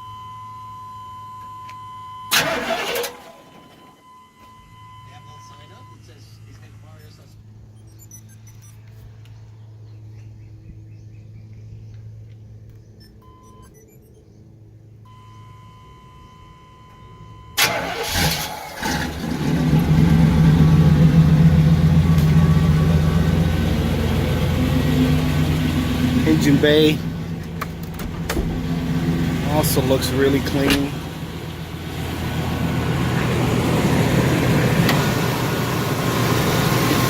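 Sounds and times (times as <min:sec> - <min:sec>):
engine idling: 0:02.3 - 0:03.8, 0:15.1 - 0:37.0
engine cranking and starting: 0:02.3 - 0:04.0, 0:17.6 - 0:31.7
warning tone: 0:03.5 - 0:06.0, 0:15.1 - 0:17.8.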